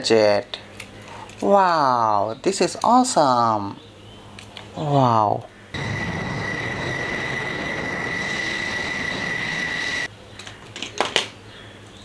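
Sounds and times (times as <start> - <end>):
hiss with high whine: 5.8 - 10.1.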